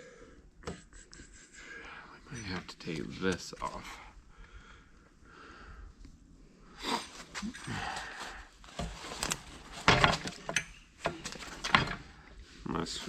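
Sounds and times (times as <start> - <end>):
man breathing hard: 0.0 - 0.5, 4.1 - 6.0, 6.7 - 8.6.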